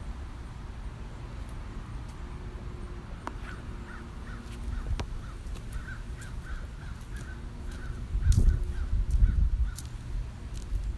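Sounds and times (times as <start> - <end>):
bird calling repeatedly: 3.3 - 9.9.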